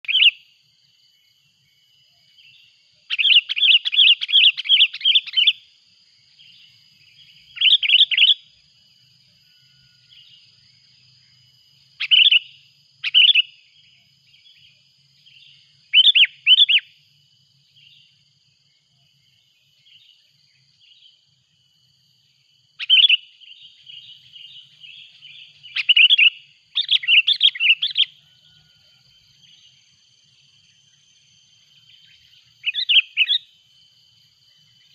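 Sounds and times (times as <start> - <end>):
bulbul chirping and calling: 0.0 - 0.4, 2.5 - 5.6, 7.2 - 8.5, 12.0 - 13.6, 15.3 - 16.9, 22.8 - 28.6, 31.9 - 33.5
faint steady high tone: 0.0 - 21.6, 22.2 - 34.9.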